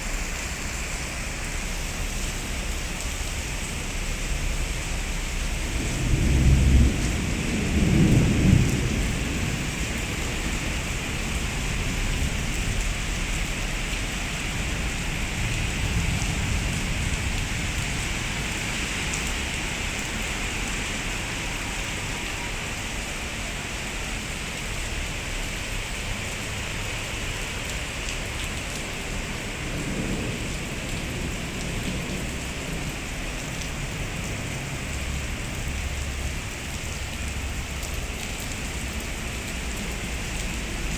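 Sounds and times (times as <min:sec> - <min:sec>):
heavy rain falling: 0:00.0 - 0:40.9
thunder rumbling: 0:05.4 - 0:13.8, 0:28.8 - 0:37.6.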